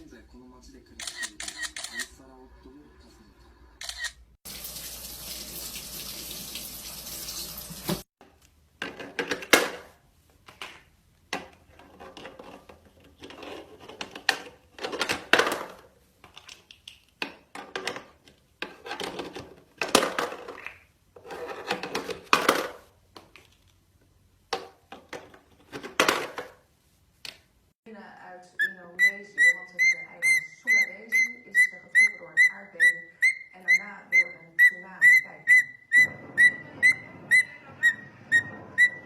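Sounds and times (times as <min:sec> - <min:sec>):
water running from a tap: 0:04.5 - 0:08.1.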